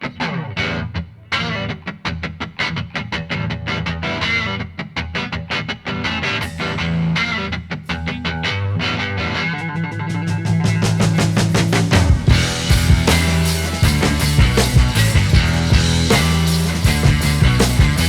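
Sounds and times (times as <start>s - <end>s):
guitar plucking rhythmic notes: 0.0s - 18.0s
steady bass line: 9.8s - 18.0s.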